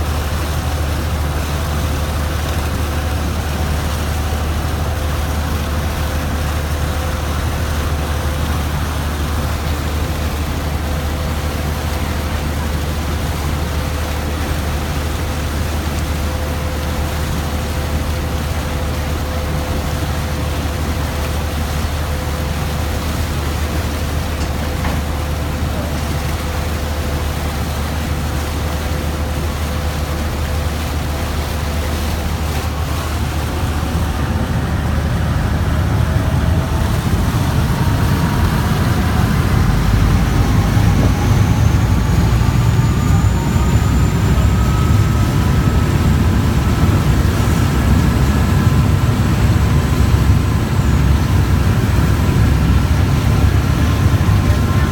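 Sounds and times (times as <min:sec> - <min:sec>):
boat engine drone: 0:00.0 - 0:54.9
rising whine: 0:30.5 - 0:54.9.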